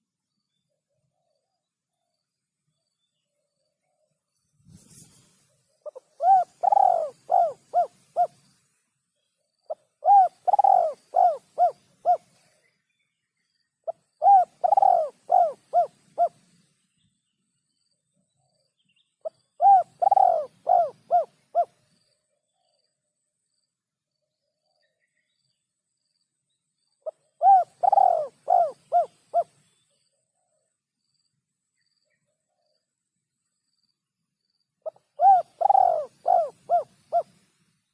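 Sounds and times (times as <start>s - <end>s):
dove cooing: 5.8s - 8.4s, 9.7s - 12.4s, 13.9s - 16.5s, 19.2s - 21.8s, 27.0s - 29.6s, 34.8s - 37.4s.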